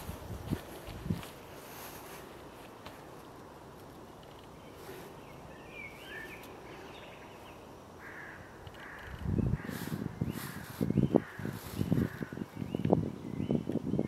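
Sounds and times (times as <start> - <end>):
steady hiss: 0.0 - 13.1
birds calling: 4.0 - 14.0.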